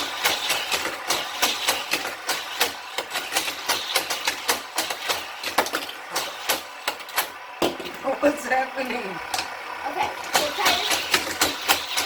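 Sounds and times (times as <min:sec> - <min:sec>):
motorized toy boosters running: 0:00.0 - 0:07.6, 0:08.2 - 0:12.0
toy cars clattering on plastic track: 0:00.0 - 0:08.2, 0:08.9 - 0:12.0.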